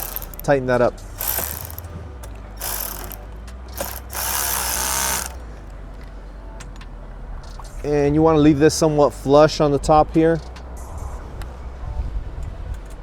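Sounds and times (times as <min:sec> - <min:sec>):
ratchet wrench clicking: 0:00.0 - 0:00.5, 0:01.2 - 0:01.9, 0:02.6 - 0:05.4.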